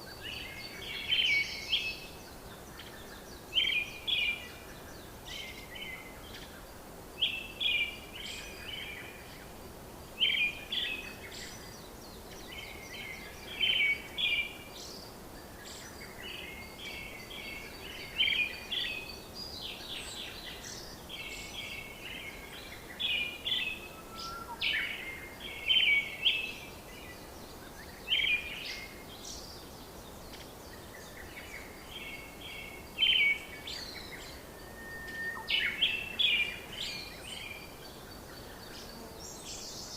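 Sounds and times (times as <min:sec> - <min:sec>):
steady background hiss: 0:00.0 - 0:39.9
birds chirping: 0:10.1 - 0:39.9.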